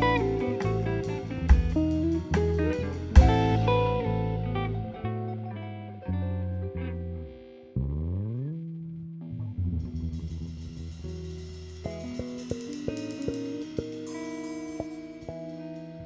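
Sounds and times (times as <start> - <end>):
drum and cymbal hits: 0.0 - 4.6
plucked guitar chords: 0.0 - 9.6
bass notes: 0.0 - 14.3.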